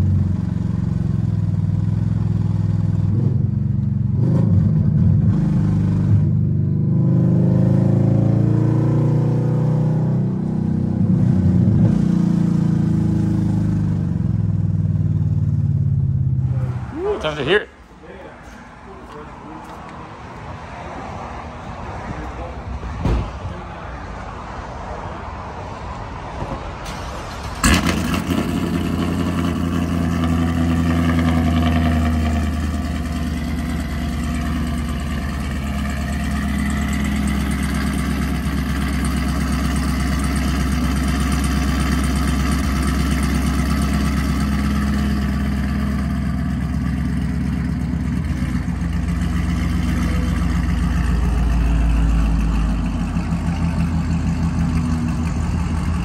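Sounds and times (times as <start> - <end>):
car engine starting with a crack: 26.5 - 28.7
car engine idling deeply: 27.4 - 56.0.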